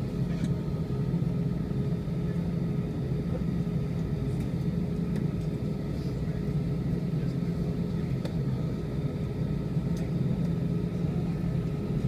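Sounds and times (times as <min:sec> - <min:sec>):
jet engine rumble: 0:00.0 - 0:12.0.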